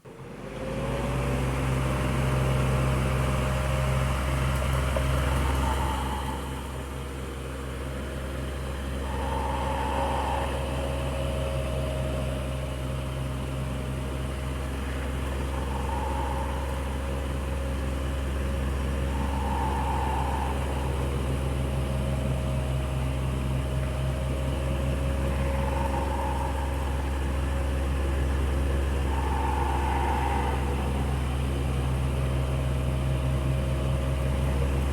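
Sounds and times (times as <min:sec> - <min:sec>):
electric fan whirring: 0:01.0 - 0:34.9
faint higher tone: 0:14.7 - 0:33.6.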